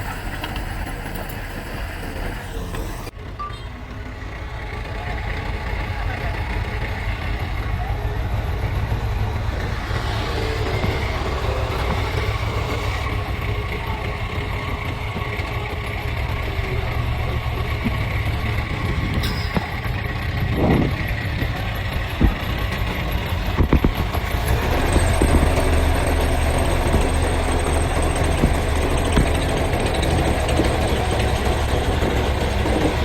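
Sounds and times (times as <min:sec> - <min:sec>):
diesel machinery engine running: 0:00.0 - 0:33.0
metal knocks and clanks: 0:15.0 - 0:33.0.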